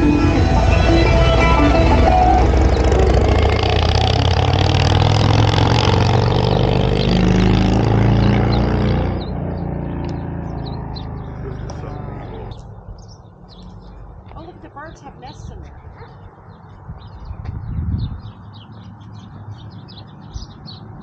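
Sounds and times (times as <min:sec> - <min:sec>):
vehicle engine running: 0:00.0 - 0:15.6.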